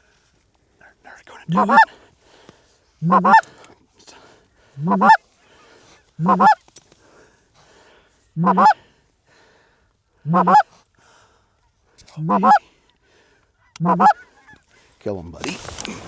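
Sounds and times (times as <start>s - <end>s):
goose honking: 1.5s - 1.8s, 3.0s - 3.5s, 4.8s - 5.2s, 6.2s - 6.6s, 8.4s - 8.8s, 10.3s - 10.6s, 12.2s - 12.6s, 13.8s - 14.4s.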